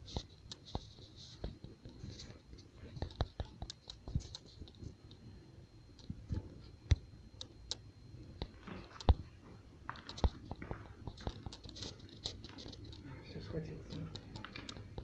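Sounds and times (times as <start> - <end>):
fire crackling and popping: 5.9 - 13.1, 13.9 - 15.0.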